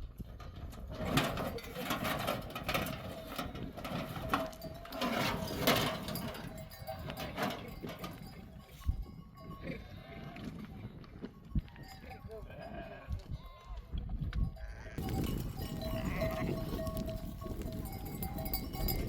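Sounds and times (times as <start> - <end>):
hooves clattering: 0.0 - 19.0
sheep and goats bleating: 4.4 - 19.0.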